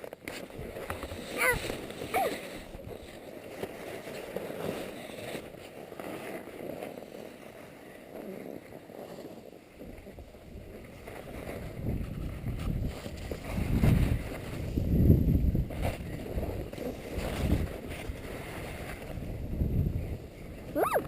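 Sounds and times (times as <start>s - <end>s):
skis sliding over snow: 0.0s - 21.0s
wind buffeting microphone: 9.7s - 21.0s.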